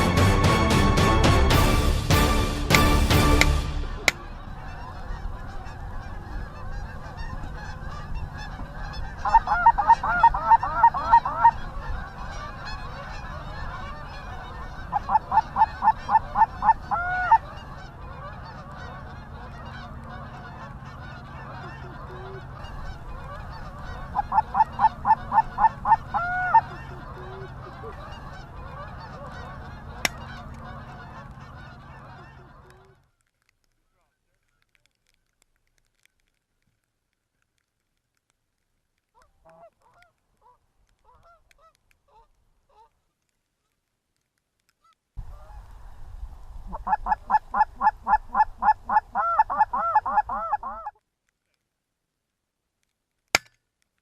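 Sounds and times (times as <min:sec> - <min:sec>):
goose honking: 0:00.0 - 0:34.8, 0:39.2 - 0:43.0, 0:46.7 - 0:51.0
low background noise: 0:02.0 - 0:54.0
sharp click: 0:53.4 - 0:53.6.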